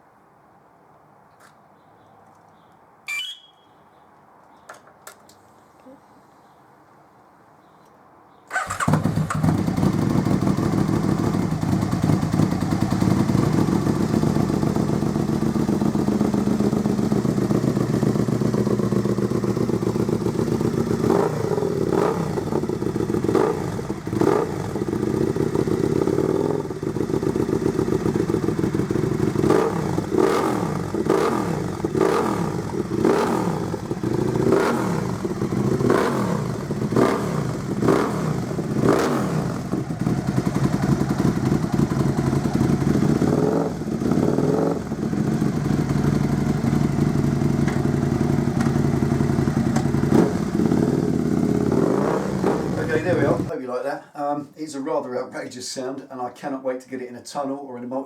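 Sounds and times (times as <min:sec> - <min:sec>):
motorcycle engine idling and revving: 0:08.5 - 0:53.5.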